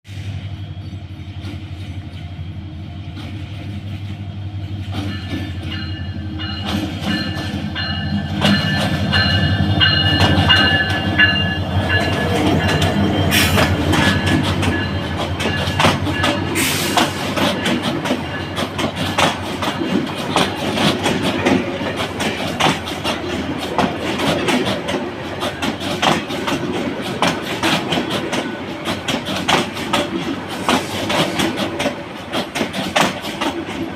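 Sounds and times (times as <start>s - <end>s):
diesel locomotive humming: 0.1s - 33.9s
coaches clattering over rail joints: 3.1s - 33.9s
wheels squealing on rail: 4.7s - 19.4s, 27.1s - 31.9s.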